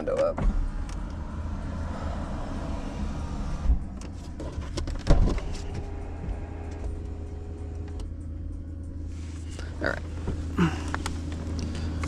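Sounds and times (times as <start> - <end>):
low steady hum: 0.0 - 12.0
outside noise: 0.0 - 12.0
loud thump inside car: 0.2 - 0.9, 3.5 - 6.9.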